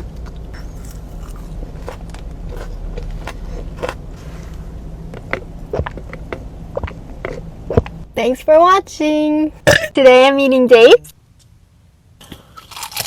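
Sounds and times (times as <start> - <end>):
steady low hum: 0.0 - 13.0
person chewing crispy food: 0.3 - 7.9, 12.3 - 13.0.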